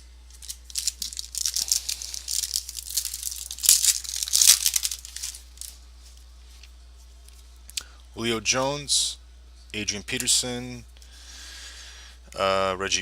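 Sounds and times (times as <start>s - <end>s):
plastic wrapper tearing and crinkling: 0.3s - 5.8s.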